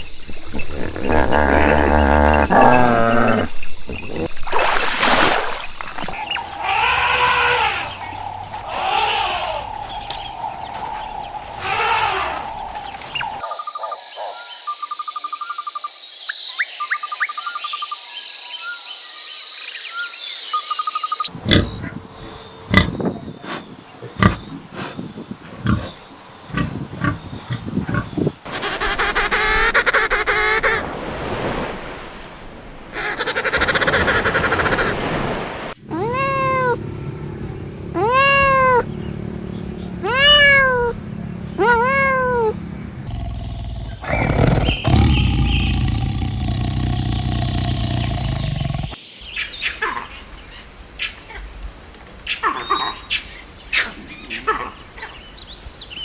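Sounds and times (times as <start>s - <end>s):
arching rising and falling calls: 6.0s - 13.4s, 33.0s - 49.0s
farm animal calls: 6.1s - 13.4s, 26.5s - 30.8s, 35.9s - 49.0s.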